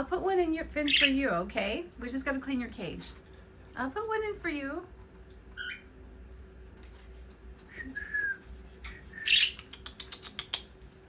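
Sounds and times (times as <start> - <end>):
parrots chirping: 0.7 - 1.4, 5.5 - 6.0, 7.8 - 10.8
bird whistled call: 9.1 - 9.7.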